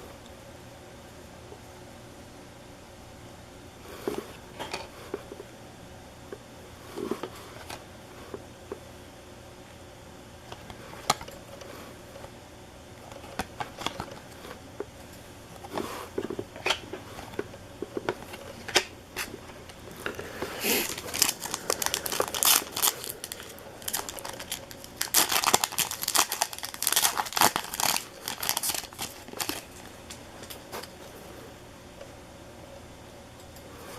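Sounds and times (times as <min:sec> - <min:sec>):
wrappers tearing and crinkling: 0:18.2 - 0:30.9.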